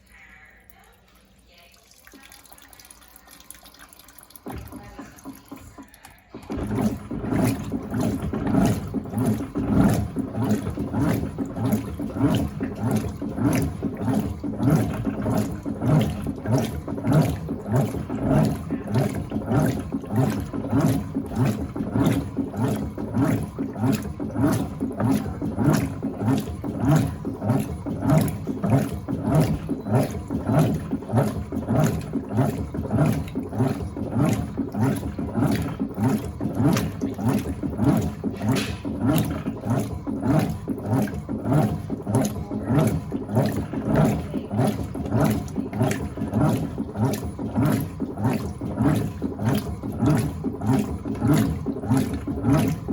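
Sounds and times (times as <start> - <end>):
washing machine agitating: 0.0 - 52.9.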